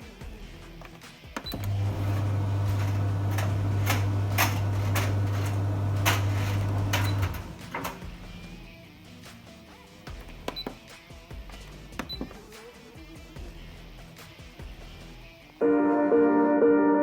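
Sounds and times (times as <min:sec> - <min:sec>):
tumble dryer motor hum: 0:01.5 - 0:08.7.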